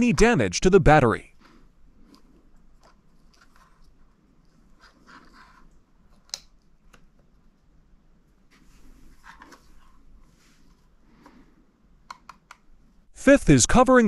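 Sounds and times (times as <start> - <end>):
faint handling noises: 1.3 - 11.6.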